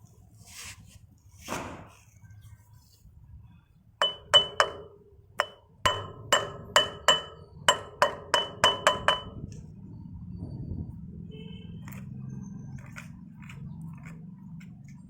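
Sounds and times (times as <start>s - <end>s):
hammer striking metal: 4.0s - 9.6s.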